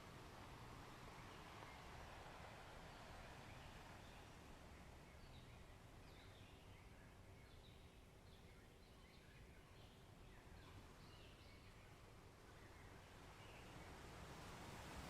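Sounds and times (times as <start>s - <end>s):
low steady background rush: 0.0s - 15.0s.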